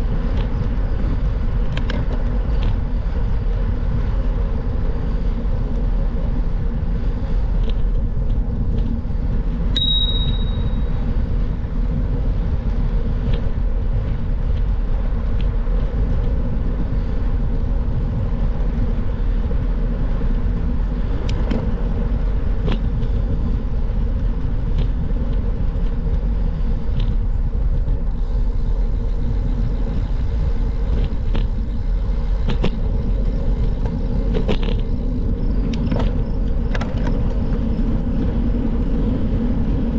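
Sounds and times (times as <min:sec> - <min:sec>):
wind rumble on microphone: 0:00.0 - 0:39.9
short high note: 0:09.8 - 0:10.9.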